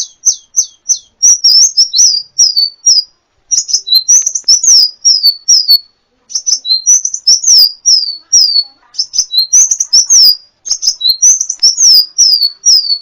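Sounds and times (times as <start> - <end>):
sunbird singing: 0.0 - 13.0.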